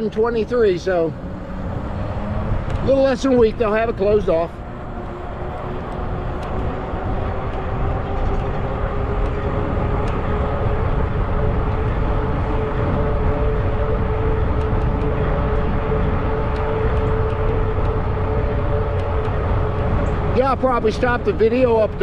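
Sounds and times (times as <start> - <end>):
wind rumbling on microphone: 0.0 - 22.0
electric bike motor whine: 3.8 - 20.4.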